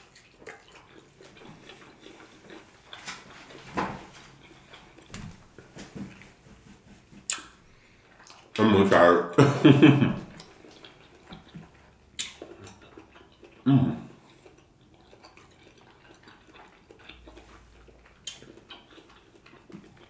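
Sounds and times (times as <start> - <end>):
wet chewing sounds: 0.0 - 8.6, 10.2 - 20.0
mouth smacks: 7.1 - 7.6, 10.2 - 20.0.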